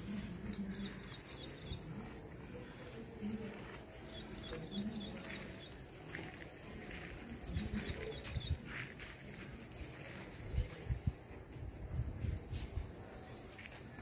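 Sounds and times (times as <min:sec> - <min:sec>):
bird chirping: 0:00.1 - 0:02.2, 0:04.0 - 0:05.9, 0:07.4 - 0:08.8.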